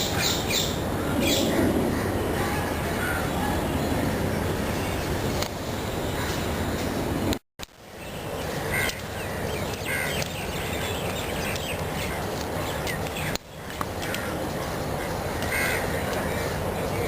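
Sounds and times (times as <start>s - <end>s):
outdoor background noise: 0.0s - 17.0s
crows cawing: 8.7s - 10.2s, 15.3s - 16.6s.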